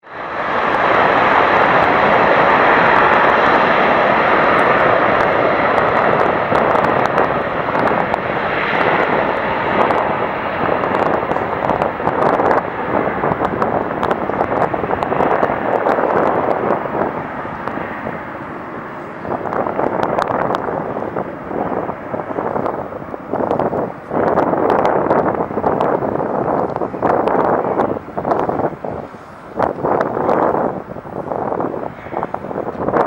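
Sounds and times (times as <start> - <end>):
airliner engines at takeoff: 0.0 - 33.0
wind crackling on microphone: 0.0 - 33.0.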